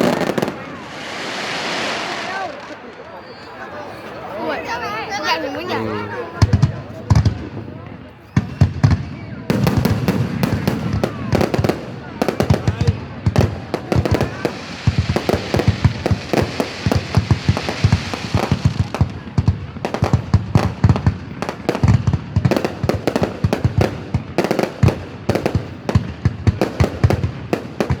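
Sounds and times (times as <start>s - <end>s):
crackling hiss: 0.0s - 3.5s
fireworks banging: 0.0s - 28.0s.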